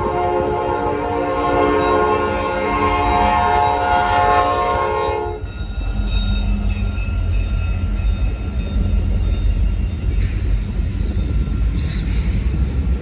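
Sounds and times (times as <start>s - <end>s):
train horn chord: 0.0s - 5.4s
train rumbling past: 0.0s - 13.0s
ringing tones from wheels: 5.3s - 12.1s.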